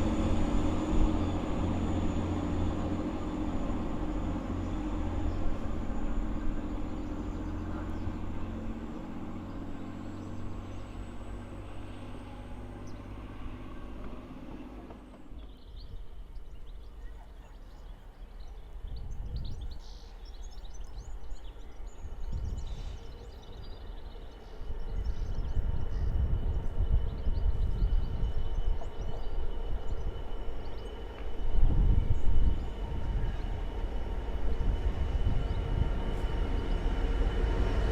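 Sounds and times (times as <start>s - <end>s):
low rumbling: 0.0s - 16.5s, 31.5s - 37.9s
train engine humming: 0.0s - 37.9s.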